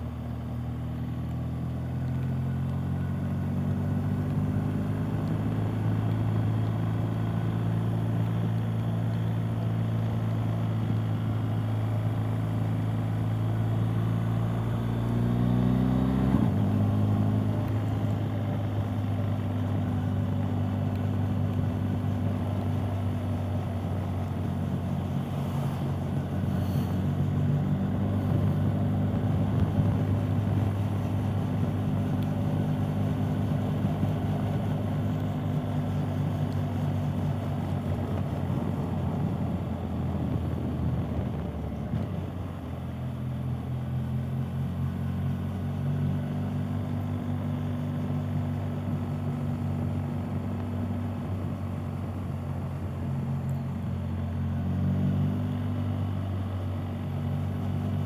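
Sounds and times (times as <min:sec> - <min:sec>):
wind and road noise: 0:00.0 - 0:58.0
motorcycle engine revving: 0:13.2 - 0:23.5.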